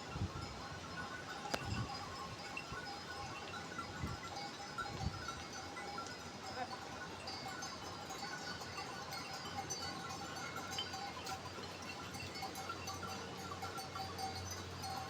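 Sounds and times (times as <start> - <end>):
sheep bells tinkling: 0.0 - 15.0.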